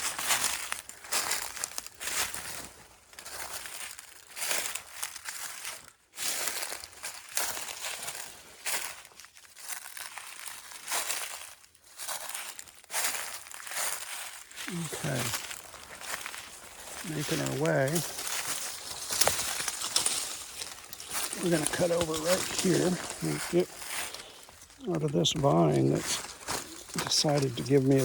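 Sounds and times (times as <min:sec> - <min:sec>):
footsteps crunching dry leaves: 0:00.0 - 0:28.0
brush rustling against clothing: 0:14.6 - 0:28.0.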